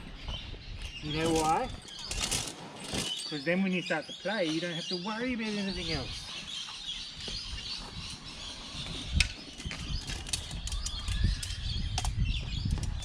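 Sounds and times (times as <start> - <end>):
gear rustling and clicking: 1.2 - 3.3, 9.6 - 13.0
low wind rumble: 6.9 - 13.0.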